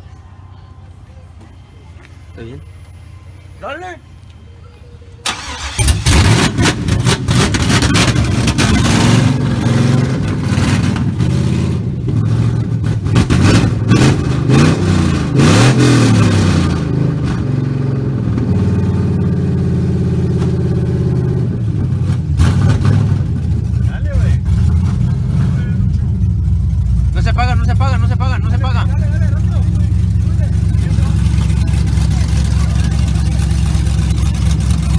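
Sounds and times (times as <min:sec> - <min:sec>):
engine idling: 0:00.0 - 0:34.9
engine starting: 0:05.2 - 0:08.9
engine revving: 0:05.3 - 0:34.9.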